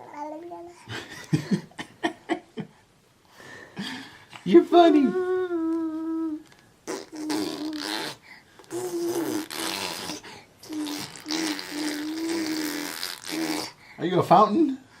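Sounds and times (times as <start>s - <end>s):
baby humming: 4.9s - 13.8s
baby blowing raspberries: 6.8s - 14.0s.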